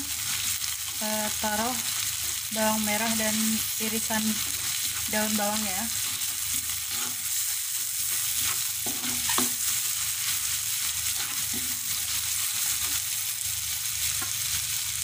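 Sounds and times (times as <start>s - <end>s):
garlic sizzling: 0.0s - 15.0s
spatula scraping and knocking pan: 5.9s - 13.0s.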